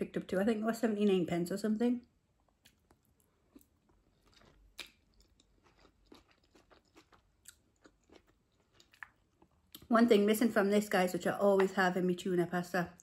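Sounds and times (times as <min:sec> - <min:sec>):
wet chewing mouth sounds: 0:02.6 - 0:09.8.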